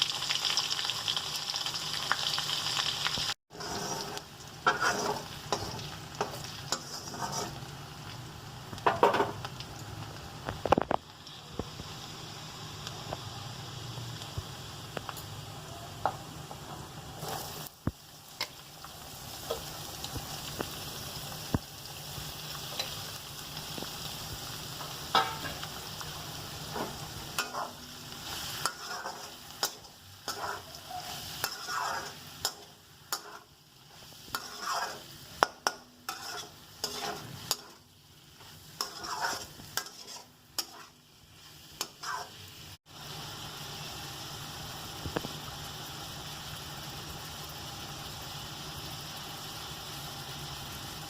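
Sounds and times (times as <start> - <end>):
food sizzling in a hot pan: 0.0 - 51.0
spatula scraping a pan: 3.5 - 7.7, 26.7 - 37.8, 38.4 - 42.4.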